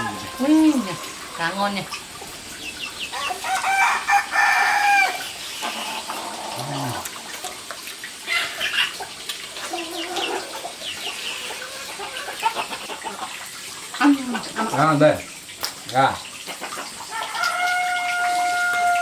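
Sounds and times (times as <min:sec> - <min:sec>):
rooster crowing: 0:00.0 - 0:01.5, 0:03.1 - 0:05.4, 0:17.1 - 0:19.0
chickens clucking: 0:00.0 - 0:19.0.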